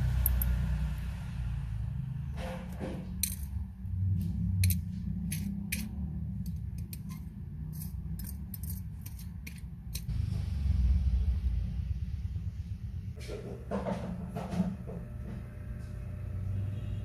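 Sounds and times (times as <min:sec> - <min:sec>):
low background rumble: 0:00.0 - 0:13.4
small metal tools clicking: 0:03.2 - 0:03.6, 0:04.6 - 0:10.1.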